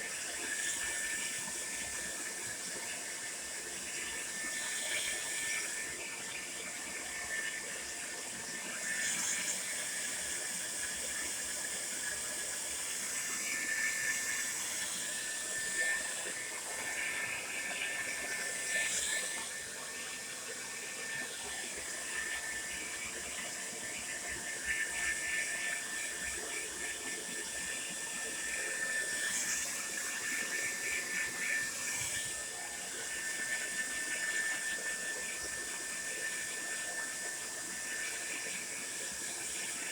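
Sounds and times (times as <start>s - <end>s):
hair dryer running: 12.0s - 39.9s.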